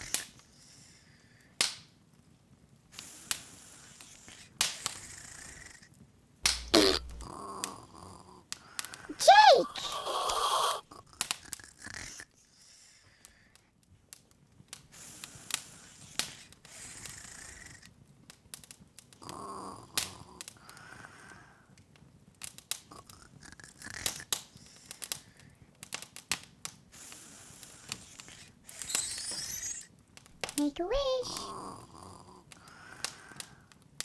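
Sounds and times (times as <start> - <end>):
wood fire crackling: 6.4 - 7.8.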